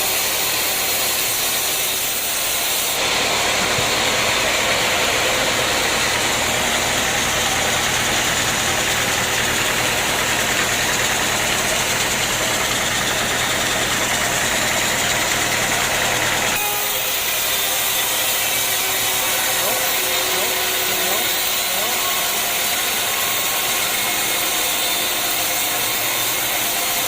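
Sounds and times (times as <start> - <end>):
sawmill machinery running: 0.0 - 27.0.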